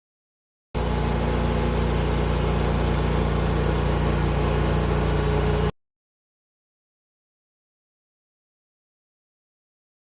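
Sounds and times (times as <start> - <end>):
machine drone with low hum: 0.8 - 5.7
thin high whine: 0.8 - 5.7.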